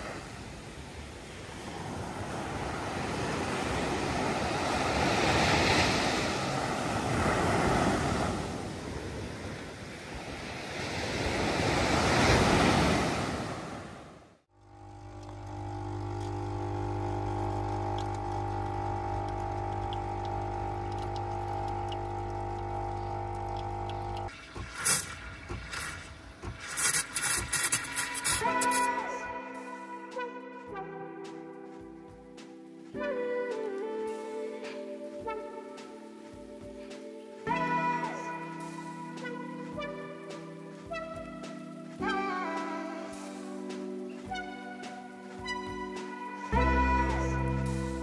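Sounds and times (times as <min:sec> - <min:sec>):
ocean waves washing onto beach: 0:00.0 - 0:28.9
background music sustained chord: 0:28.5 - 0:48.0.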